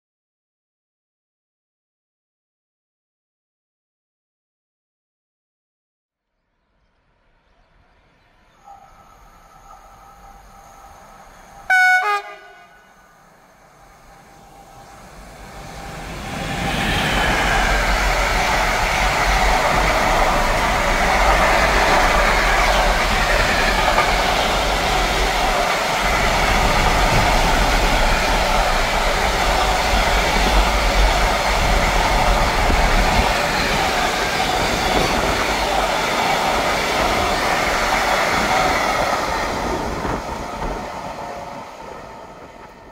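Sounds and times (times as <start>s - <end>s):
train wheels rumbling on rails: 8.5s - 42.9s
locomotive horn: 11.6s - 13.0s.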